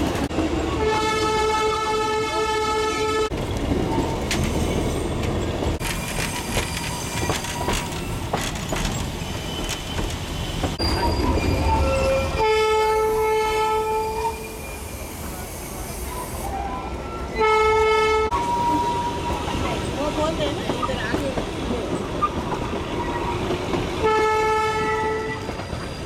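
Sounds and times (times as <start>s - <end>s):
train wheels rumbling on track: 0.0s - 26.0s
train horn blast: 0.8s - 3.3s, 12.0s - 14.4s, 17.3s - 19.2s, 24.0s - 25.4s.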